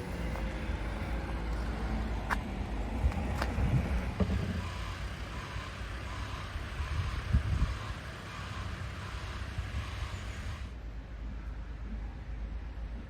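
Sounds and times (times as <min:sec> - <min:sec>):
low steady rumble: 0:00.0 - 0:08.0
wind on microphone: 0:06.6 - 0:08.0.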